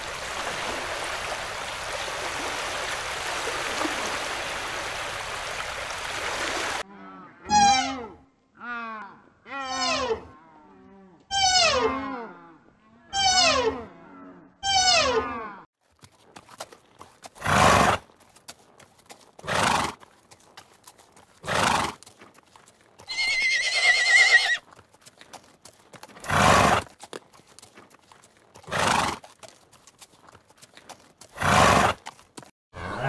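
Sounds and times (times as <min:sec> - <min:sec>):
horse snorting: 0:17.2 - 0:18.1, 0:19.4 - 0:20.1, 0:21.4 - 0:22.2, 0:26.1 - 0:26.9, 0:28.6 - 0:29.6, 0:31.3 - 0:32.2
horse whinny: 0:23.1 - 0:24.6.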